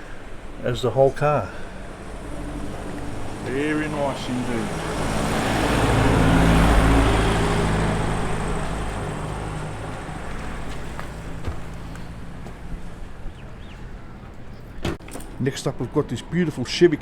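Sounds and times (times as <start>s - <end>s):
car driving past: 1.5s - 14.8s.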